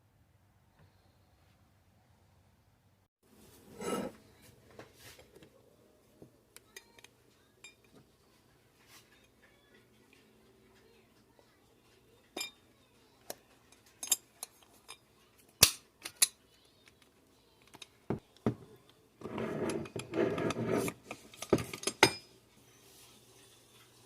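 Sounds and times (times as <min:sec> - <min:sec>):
metal parts clicking and clinking: 0:13.7 - 0:15.0.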